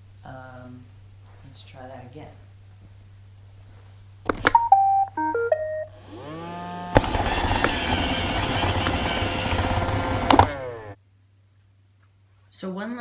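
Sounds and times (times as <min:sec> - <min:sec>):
beeping start-up tune: 0:04.6 - 0:05.9
robot vacuum motors whining: 0:05.9 - 0:11.0.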